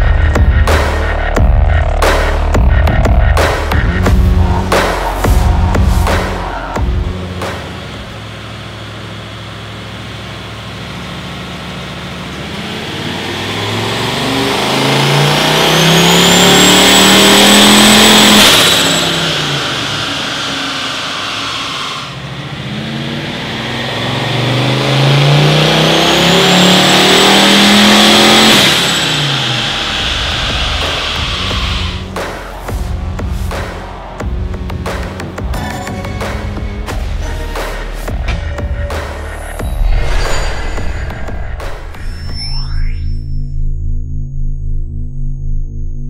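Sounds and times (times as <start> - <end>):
engine revving at full throttle: 0.0 - 35.4.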